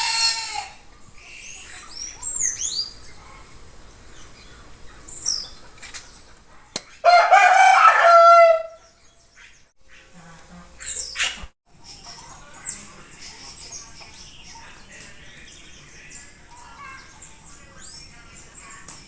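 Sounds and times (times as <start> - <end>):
rooster crowing: 0.0 - 0.8, 7.0 - 8.9
small birds chirping: 0.0 - 7.0, 8.8 - 19.0.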